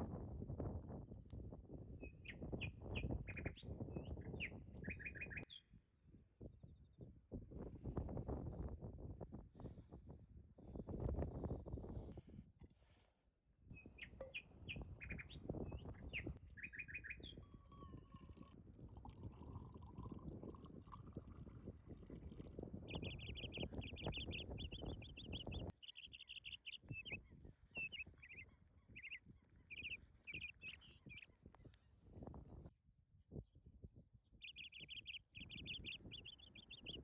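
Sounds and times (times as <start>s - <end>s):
songbirds chirping and trilling: 2.0s - 5.7s, 13.7s - 18.5s, 22.2s - 32.4s, 34.2s - 37.0s.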